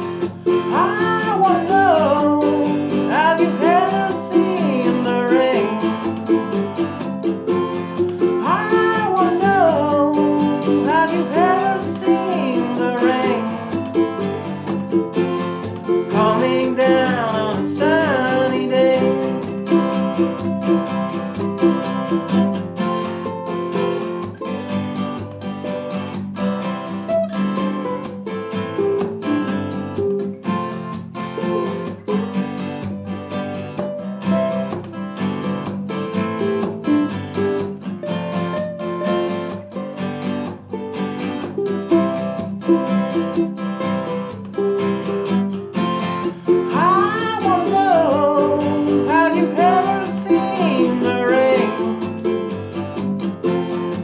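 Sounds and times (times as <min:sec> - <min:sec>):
person singing wordlessly: 0:00.0 - 0:22.2, 0:45.8 - 0:52.8
acoustic guitar strumming: 0:00.0 - 0:54.0
ukulele strumming: 0:00.0 - 0:54.0.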